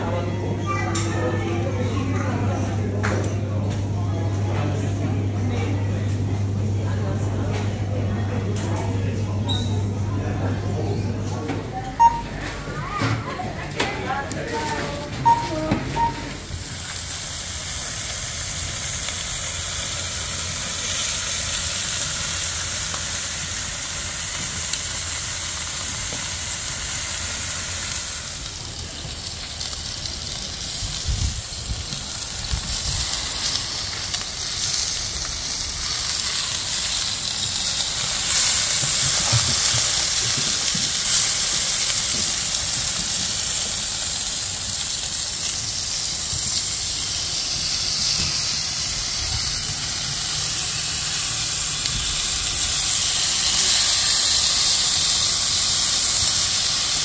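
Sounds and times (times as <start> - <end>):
steady rushing hiss: 16.0 - 57.0.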